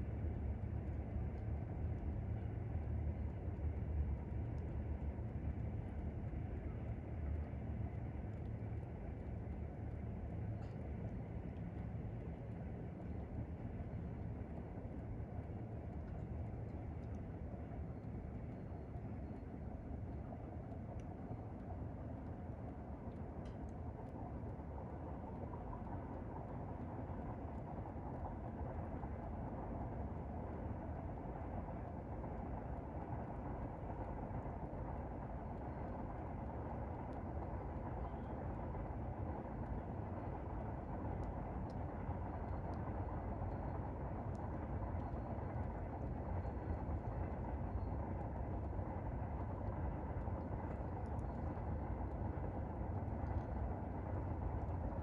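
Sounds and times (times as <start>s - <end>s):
faint clicks: 4.4s - 27.7s, 41.0s - 48.8s, 49.4s - 52.2s.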